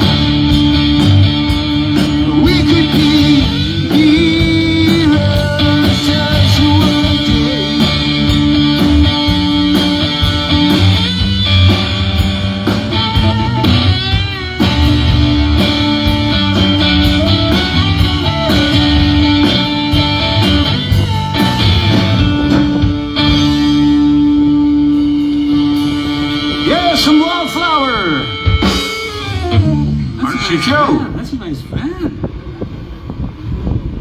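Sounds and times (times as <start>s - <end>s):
rock band playing: 0.0s - 31.4s.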